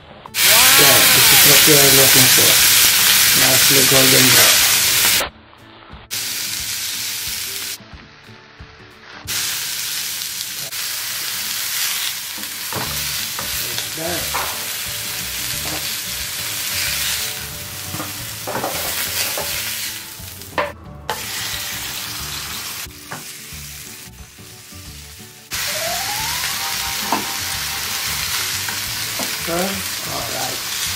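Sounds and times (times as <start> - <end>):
patties sizzling in oil: 0.4 - 5.3, 6.1 - 7.8, 9.1 - 30.9.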